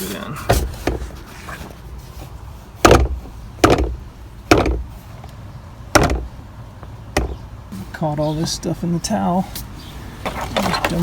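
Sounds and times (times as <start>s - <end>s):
knocks on plastic panel: 2.8s - 4.9s, 5.9s - 6.3s, 7.2s - 7.4s.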